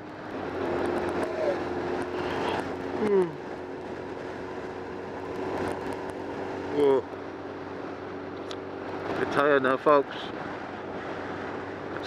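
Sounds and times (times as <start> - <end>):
motorcycle engine running: 0.0 - 9.1
wind rushing over microphone: 0.0 - 12.0.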